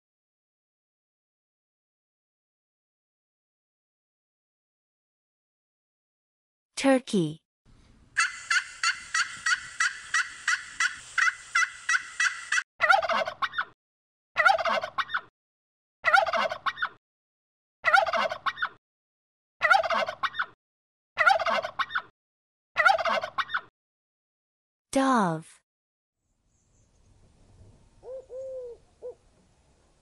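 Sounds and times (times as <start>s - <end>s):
rapid high turkey call notes: 8.2s - 12.6s
turkey gobbles: 8.2s - 13.8s, 14.4s - 15.3s, 16.0s - 17.0s, 17.8s - 18.8s, 19.6s - 20.5s, 21.2s - 22.1s, 22.8s - 23.7s.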